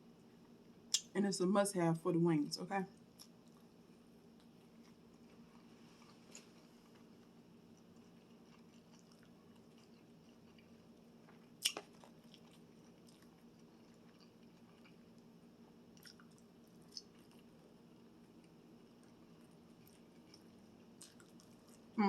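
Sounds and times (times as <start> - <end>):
person chewing food: 3.0 - 22.0
crunchy bite: 7.8 - 15.0.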